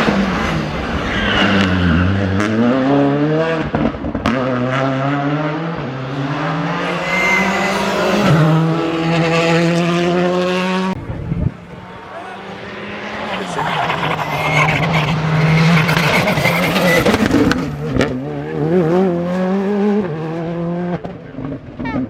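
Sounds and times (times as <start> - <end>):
rally car engine at full throttle: 0.0 - 22.0
tyre squeal: 6.7 - 8.9, 12.1 - 17.7.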